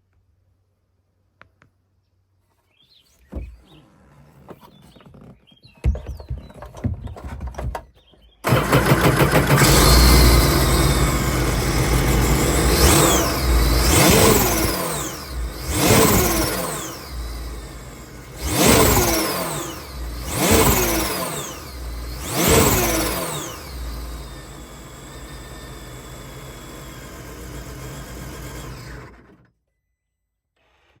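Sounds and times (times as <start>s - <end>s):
watercraft engine revving and idling: 8.4s - 29.4s.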